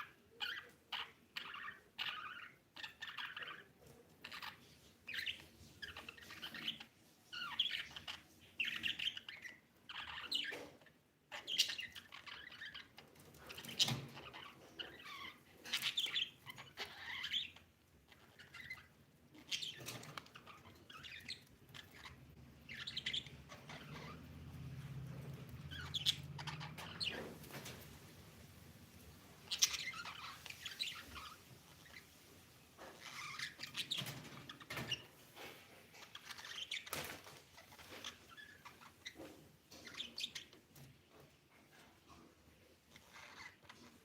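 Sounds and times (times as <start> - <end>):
budgies chirping and warbling: 0.0 - 44.0.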